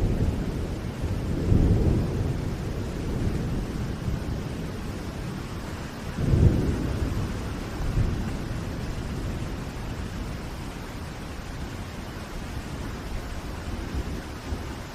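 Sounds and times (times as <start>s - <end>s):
steady rain: 0.0s - 14.9s
thunder rolling: 6.2s - 10.2s.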